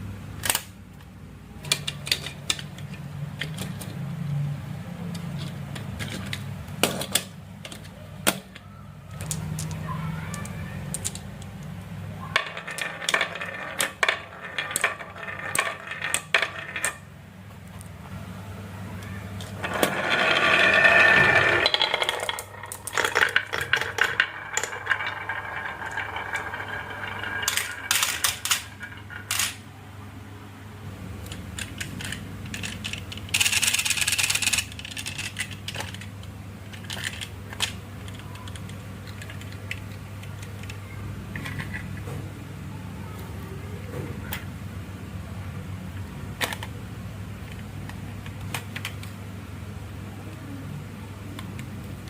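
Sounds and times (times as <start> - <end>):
marbles clicking and clacking: 9.2 - 11.7, 12.3 - 17.1, 19.4 - 29.7, 31.2 - 41.9
marbles rolling down wooden track: 12.3 - 17.1, 19.4 - 29.7.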